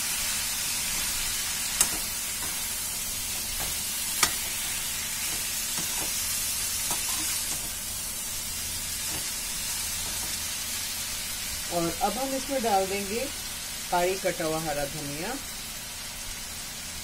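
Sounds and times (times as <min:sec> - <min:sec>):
food sizzling in oil: 0:00.0 - 0:17.0
spatula striking pan: 0:01.8 - 0:07.8
spatula scraping and tapping: 0:03.4 - 0:06.2.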